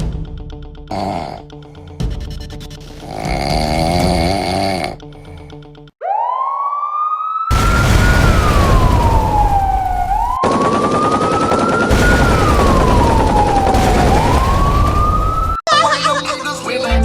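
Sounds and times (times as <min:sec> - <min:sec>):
police siren wailing: 0:06.0 - 0:15.6.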